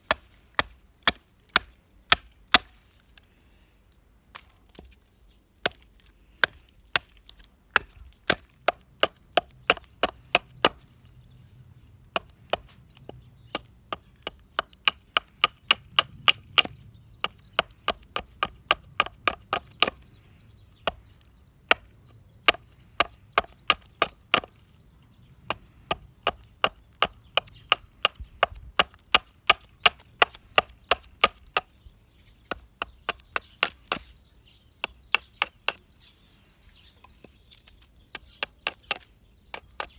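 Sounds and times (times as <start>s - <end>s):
hand tool chopping wood: 0.0s - 3.2s, 5.6s - 10.9s, 12.2s - 20.0s, 20.8s - 21.1s, 21.7s - 21.9s, 22.5s - 24.6s, 25.5s - 31.7s, 32.5s - 34.2s, 34.8s - 35.9s, 37.0s - 39.9s.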